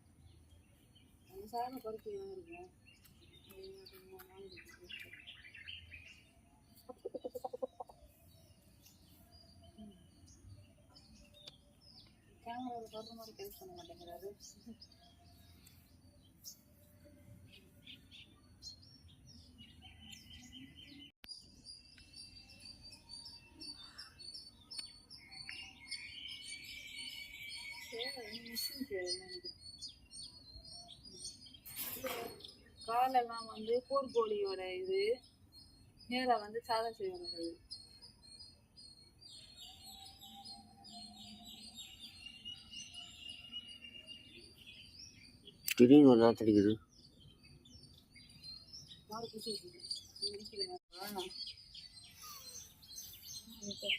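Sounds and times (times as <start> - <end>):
small birds chirping: 0.0 - 53.9
bird trill: 17.5 - 53.9.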